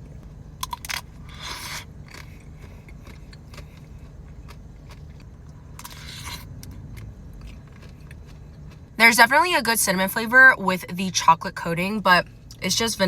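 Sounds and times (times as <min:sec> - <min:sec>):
steady low hum: 0:00.0 - 0:13.0
wet mouth eating sounds: 0:00.6 - 0:08.8.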